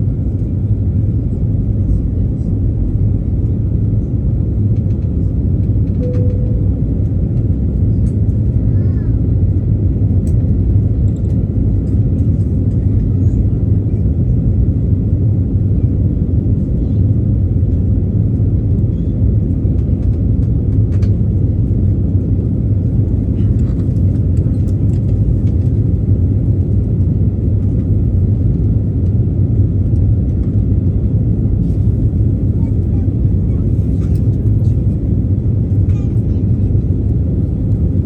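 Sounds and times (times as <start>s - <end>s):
jet engine rumble in cabin: 0.0s - 38.0s
faint clicks and rattles: 23.4s - 25.9s.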